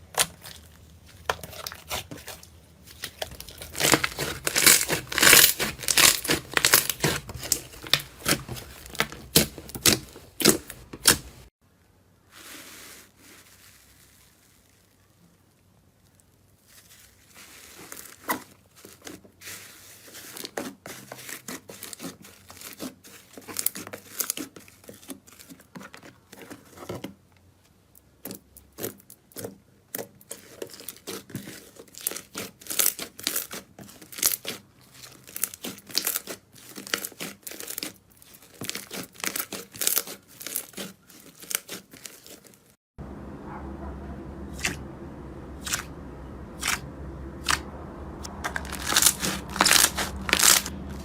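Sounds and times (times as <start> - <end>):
slime crackling and popping: 0.0 - 11.5, 29.9 - 42.4, 47.4 - 47.7, 48.4 - 51.0.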